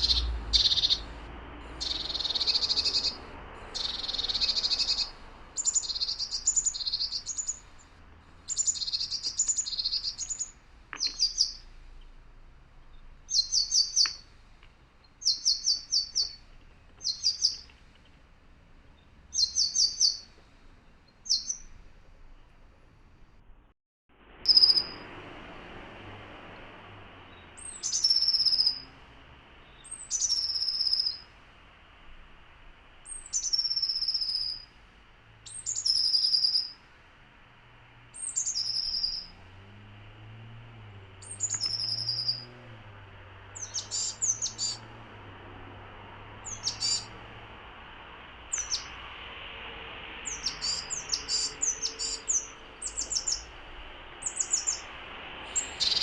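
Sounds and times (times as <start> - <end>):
quick high bird chirps: 0.0 - 1.1, 1.8 - 7.9, 8.5 - 12.1, 12.9 - 14.3, 15.0 - 16.4, 17.0 - 17.7, 19.3 - 20.4, 21.1 - 21.8, 24.4 - 25.0, 27.3 - 28.9, 29.6 - 31.3, 33.0 - 34.7, 35.5 - 36.8, 38.2 - 39.4, 41.2 - 42.5, 43.6 - 44.8, 46.4 - 47.1, 48.5 - 49.0, 50.2 - 53.5, 54.2 - 54.9, 55.5 - 56.0
songbird descending call: 0.0 - 7.9, 8.5 - 11.6, 24.4 - 25.1, 27.2 - 31.3, 33.0 - 34.7, 35.4 - 36.8, 38.2 - 39.5, 40.5 - 47.2, 48.5 - 49.3, 50.2 - 56.0.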